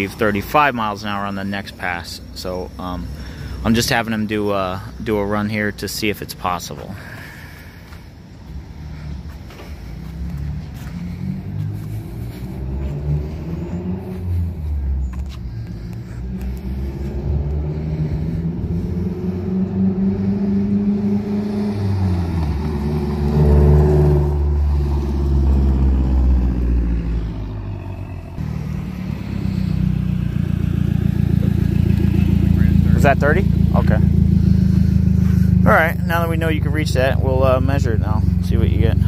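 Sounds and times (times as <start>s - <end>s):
car accelerating past: 8.8s - 39.0s.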